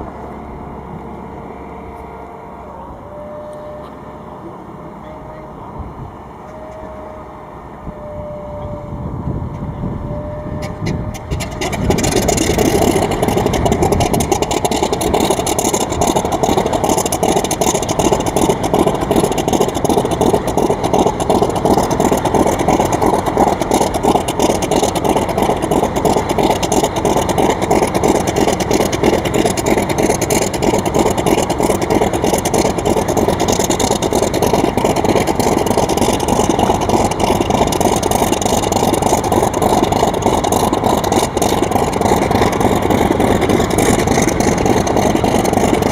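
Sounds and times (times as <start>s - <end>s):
model aeroplane motor buzzing: 11.4s - 45.9s.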